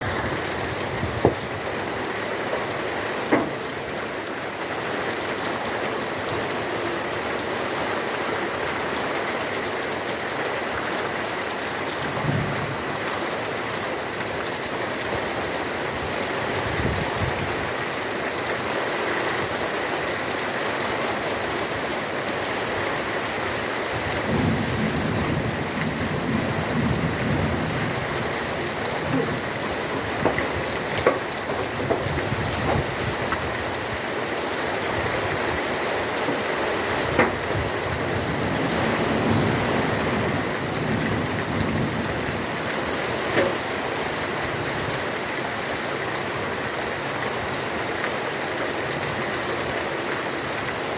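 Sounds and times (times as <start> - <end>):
heavy rain: 0.0 - 50.9
thunder rumbling: 24.2 - 33.9.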